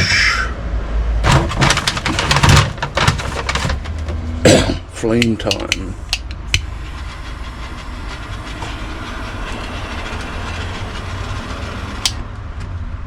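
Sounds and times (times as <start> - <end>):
gas torch hissing: 5.8 - 12.3.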